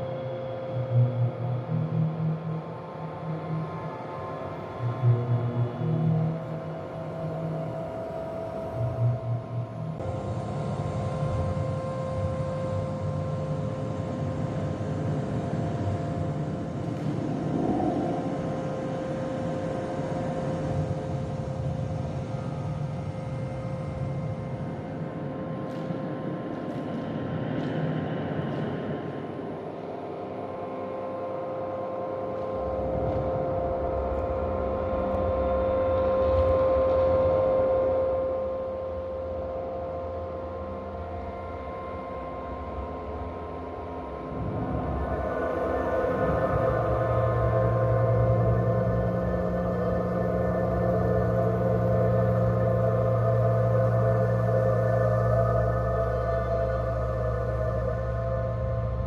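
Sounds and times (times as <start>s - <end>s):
low rumbling drone: 0.0s - 25.6s, 32.5s - 59.0s
low rumble: 16.8s - 20.8s
thin held hum tone: 30.4s - 59.0s.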